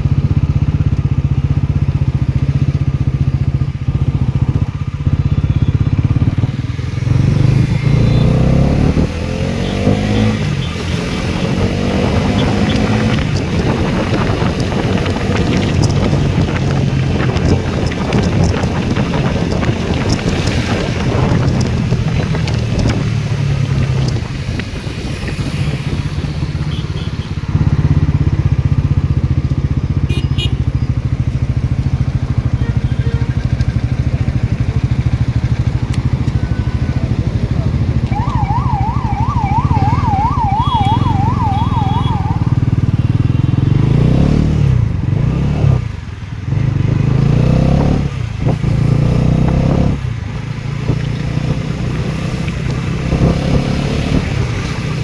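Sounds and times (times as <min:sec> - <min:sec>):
motorcycle engine running: 0:00.0 - 0:55.0
warbling electronic siren-like tone: 0:38.1 - 0:43.3.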